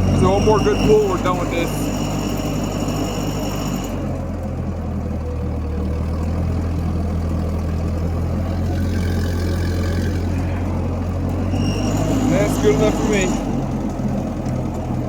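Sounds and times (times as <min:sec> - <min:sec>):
high whine: 0:00.0 - 0:04.3, 0:08.9 - 0:13.9
tractor engine under load: 0:00.0 - 0:15.0.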